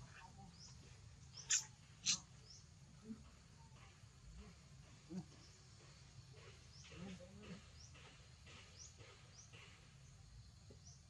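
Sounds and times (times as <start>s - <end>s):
faint high bird chirp: 0.0s - 2.7s.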